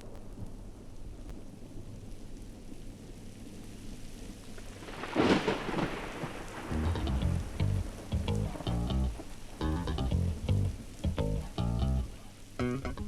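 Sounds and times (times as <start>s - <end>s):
steady rain: 0.0s - 13.0s
low thunder rumble: 4.3s - 12.2s
sharp thunderclap: 4.8s - 8.6s.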